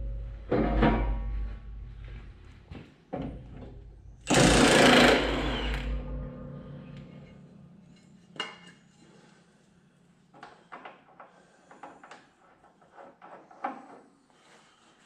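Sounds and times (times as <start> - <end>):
metal knocks: 0.0 - 2.1
impact wrench hammering: 4.3 - 6.2.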